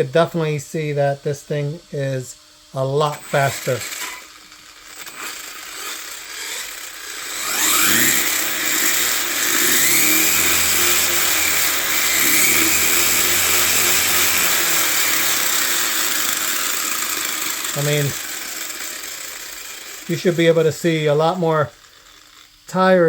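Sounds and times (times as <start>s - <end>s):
electric motor high whine: 0.0s - 23.0s
drivetrain gear noise: 3.1s - 23.0s.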